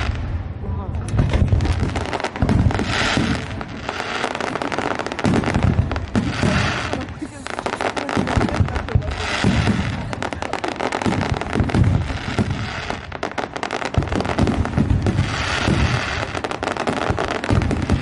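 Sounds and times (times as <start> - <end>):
fireworks booming: 0.0 - 18.0
fireworks crackling: 0.0 - 18.0.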